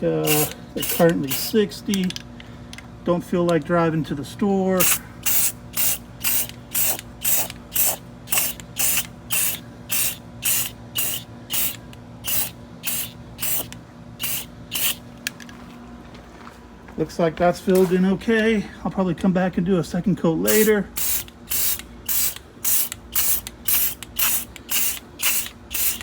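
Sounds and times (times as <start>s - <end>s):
spray can spraying in bursts: 0.2s - 1.5s, 4.8s - 15.0s, 20.5s - 26.0s.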